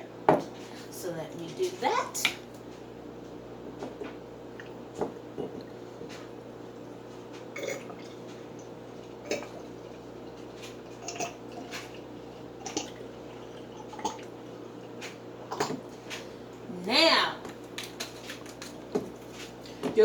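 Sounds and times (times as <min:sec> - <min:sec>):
steady low hum: 0:00.0 - 0:20.0
oil dripping and glugging: 0:06.7 - 0:16.6.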